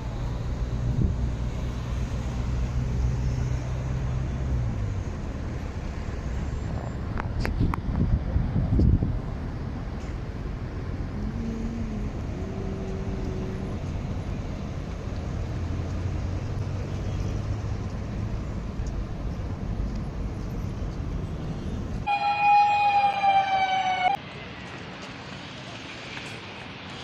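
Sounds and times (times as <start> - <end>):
loud alarm tone: 22.0 - 24.2.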